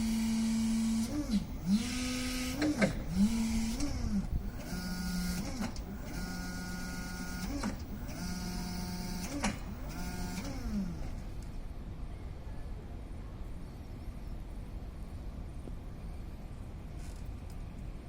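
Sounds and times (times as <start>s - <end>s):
electric forklift motor whining: 0.0s - 11.4s.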